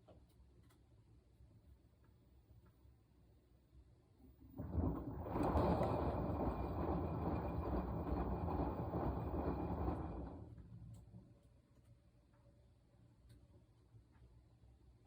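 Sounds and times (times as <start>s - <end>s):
washing machine churning: 4.2s - 11.2s.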